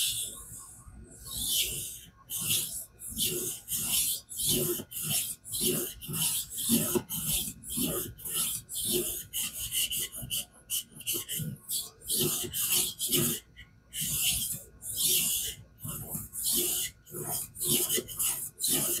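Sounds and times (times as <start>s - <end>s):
knife rasping on whetstone: 2.6s - 9.6s, 16.0s - 19.0s.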